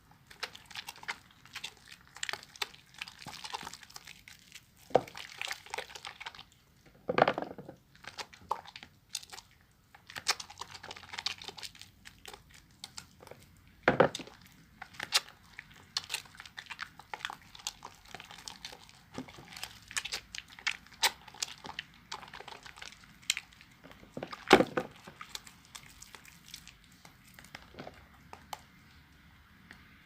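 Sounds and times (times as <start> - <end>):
wet sponge squelching: 0.0 - 6.5.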